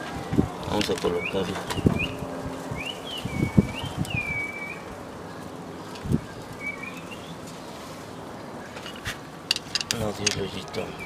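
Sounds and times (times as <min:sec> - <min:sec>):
small bird chirping: 0:01.0 - 0:07.6.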